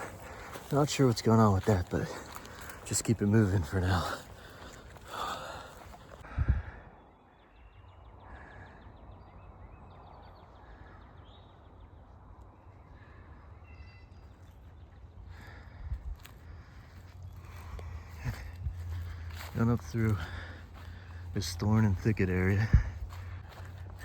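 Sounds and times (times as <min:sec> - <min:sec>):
footsteps on grass: 0:00.0 - 0:06.2, 0:15.5 - 0:24.0.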